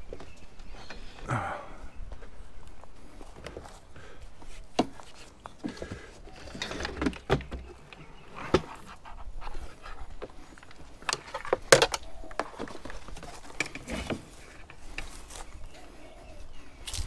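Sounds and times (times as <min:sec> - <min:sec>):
person breathing: 0:00.8 - 0:04.7.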